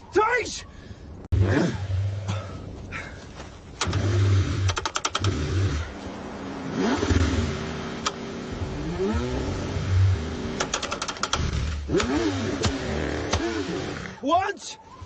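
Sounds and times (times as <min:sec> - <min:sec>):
car engine cranking and struggling: 0:03.8 - 0:14.2.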